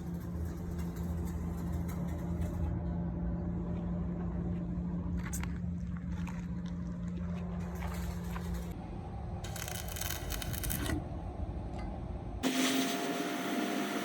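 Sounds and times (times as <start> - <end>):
machine humming: 12.4 - 14.0.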